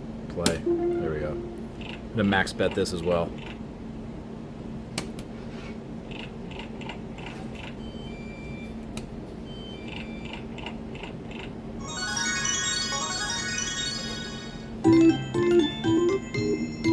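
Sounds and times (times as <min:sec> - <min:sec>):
steady low hum: 0:00.0 - 0:11.8
bright chiming jingle: 0:11.8 - 0:16.9.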